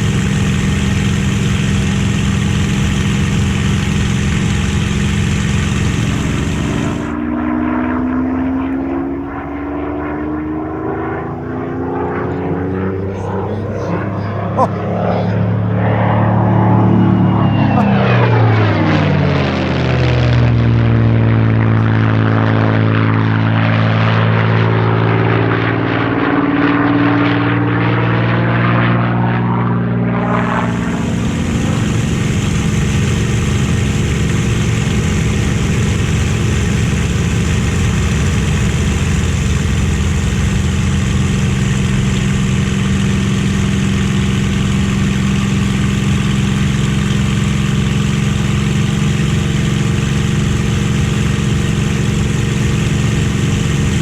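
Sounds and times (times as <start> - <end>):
propeller plane passing low: 0.0 - 54.0
steady engine drone: 0.0 - 54.0.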